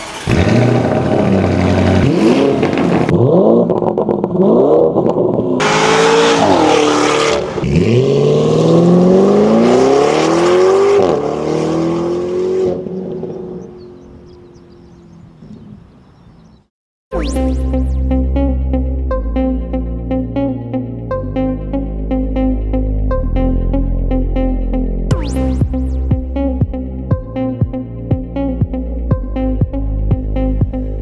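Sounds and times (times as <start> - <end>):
car engine revving and accelerating: 0.0 - 16.6.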